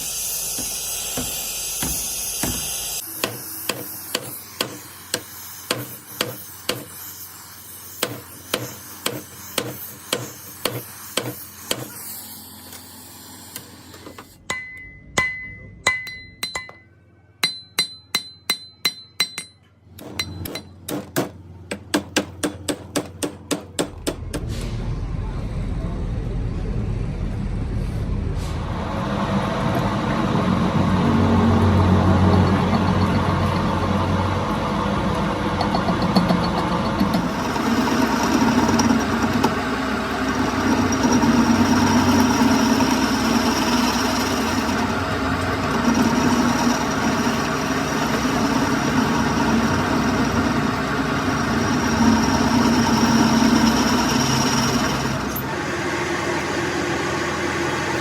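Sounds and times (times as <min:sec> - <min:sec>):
metal lathe running: 0:29.0 - 0:58.0.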